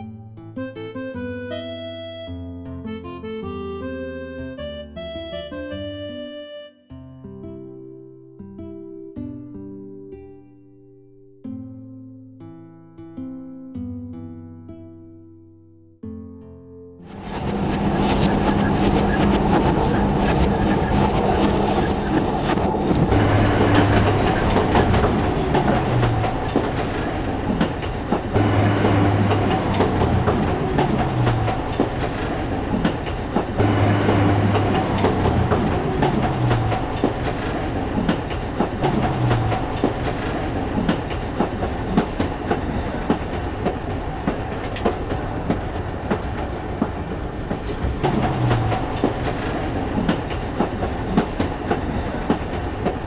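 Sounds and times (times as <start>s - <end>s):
railcar rumble: 17.0s - 53.0s
wheels clicking over rail joints: 17.2s - 53.0s.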